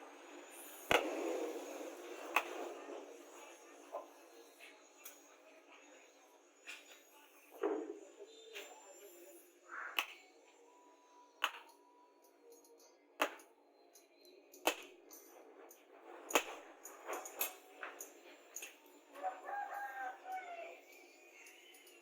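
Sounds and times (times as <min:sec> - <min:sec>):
rooster crowing: 0:19.2 - 0:21.0.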